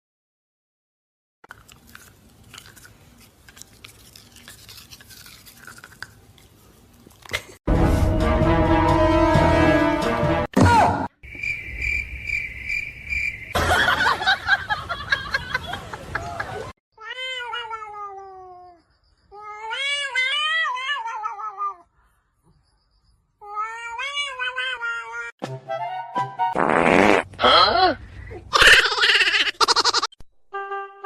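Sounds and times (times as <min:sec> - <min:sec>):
dense music-like sound: 0:07.7 - 0:10.5.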